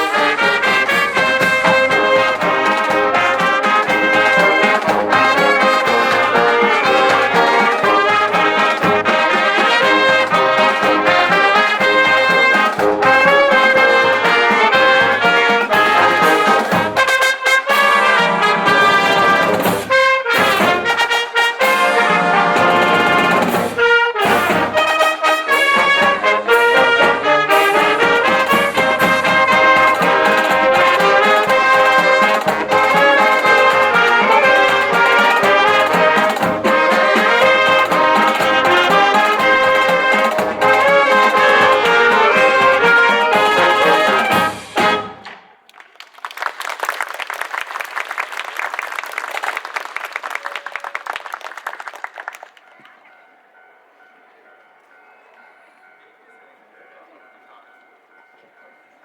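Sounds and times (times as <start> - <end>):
trumpets and trombones: 0.0 - 45.7
marching band playing: 0.0 - 52.8.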